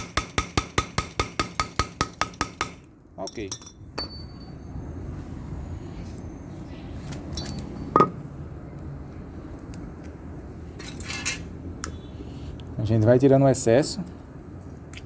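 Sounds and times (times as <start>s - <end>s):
metallic clink: 2.0s - 4.6s, 7.3s - 8.2s.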